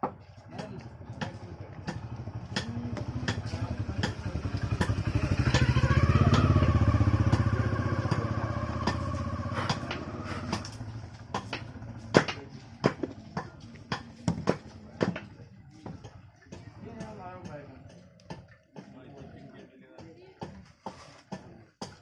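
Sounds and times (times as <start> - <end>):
vehicle engine passing by: 0.8 - 14.9.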